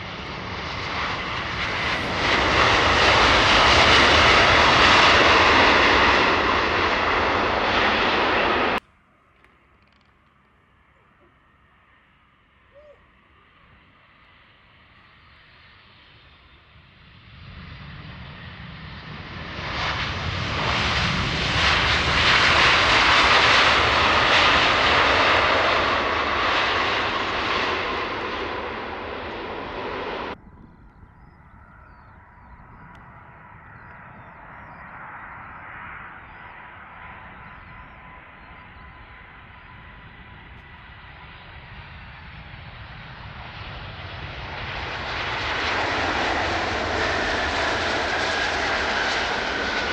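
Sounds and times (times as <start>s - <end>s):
jet airliner passing close: 0.0s - 8.8s, 10.0s - 49.9s
jet engine whine: 0.0s - 49.9s.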